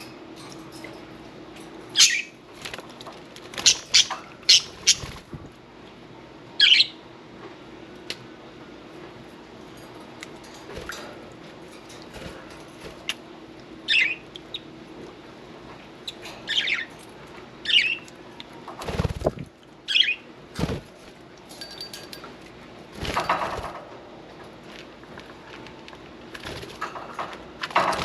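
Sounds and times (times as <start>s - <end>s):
wing flapping: 2.6s - 5.5s, 18.8s - 19.5s, 20.6s - 21.1s.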